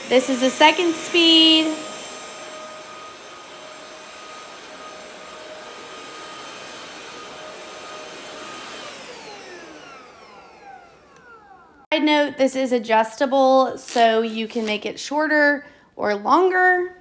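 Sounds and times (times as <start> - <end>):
stick vacuum motor whine: 0.0 - 11.9.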